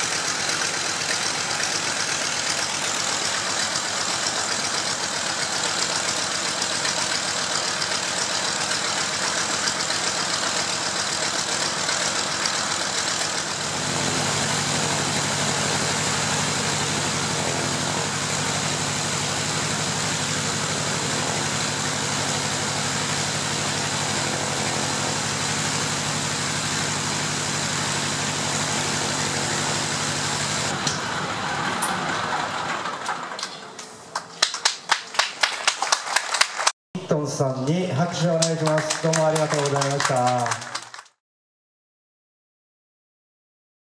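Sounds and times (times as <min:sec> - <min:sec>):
radial engine idling: 0:00.0 - 0:32.6.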